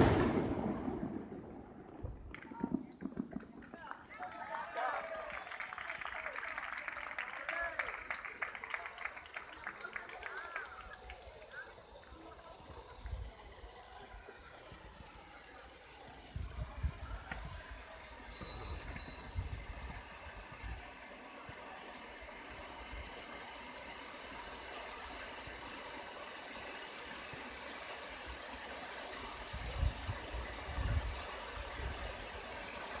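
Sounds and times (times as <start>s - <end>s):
firework whistle: 0.0s - 1.5s, 14.6s - 33.0s
dull low firework booms: 0.0s - 3.8s
distant firework crack: 0.0s - 33.0s
steady hiss: 7.8s - 33.0s.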